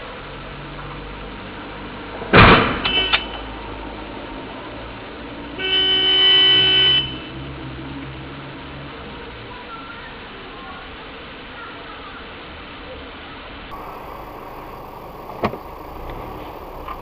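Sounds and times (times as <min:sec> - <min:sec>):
car horn blast: 0:05.6 - 0:07.1, 0:13.7 - 0:17.0.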